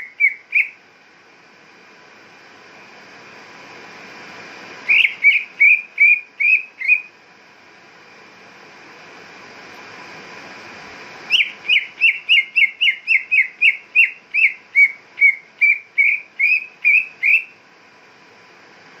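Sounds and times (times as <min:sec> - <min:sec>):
bird whistling call: 0:00.0 - 0:00.8, 0:04.9 - 0:07.1, 0:11.3 - 0:17.6.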